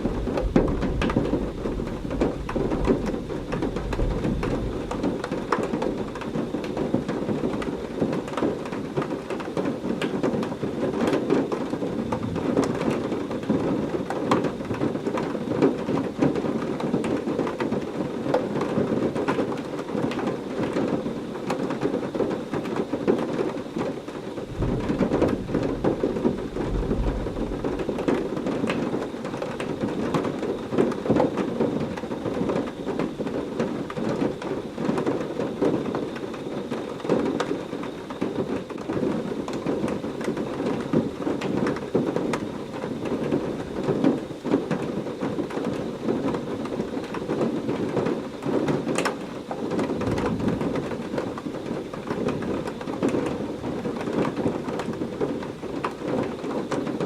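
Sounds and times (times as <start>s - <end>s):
rumble of thunder: 0.0s - 16.4s, 24.4s - 42.5s, 49.7s - 55.4s
heavy rain falling: 0.0s - 57.0s.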